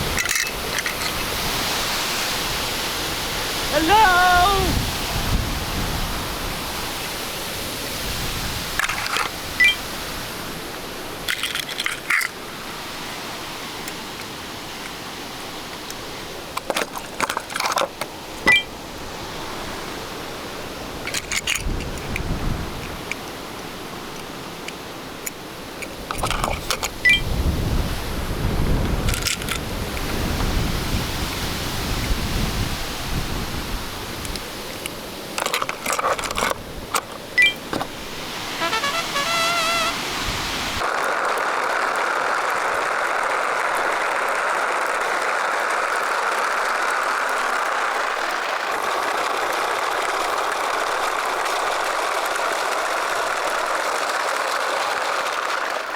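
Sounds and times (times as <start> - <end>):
wind rumble on microphone: 0.0 - 11.3, 18.9 - 23.3, 25.9 - 34.8
steady hiss: 0.0 - 17.1, 36.7 - 53.9
clicks and crunching: 11.2 - 12.4, 21.0 - 23.4, 34.3 - 37.9.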